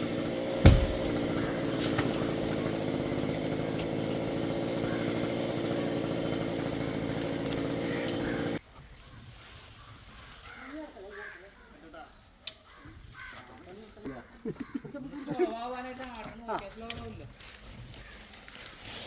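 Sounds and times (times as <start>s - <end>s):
chainsaw engine running: 0.0s - 8.6s
heavy thump: 0.6s - 2.2s.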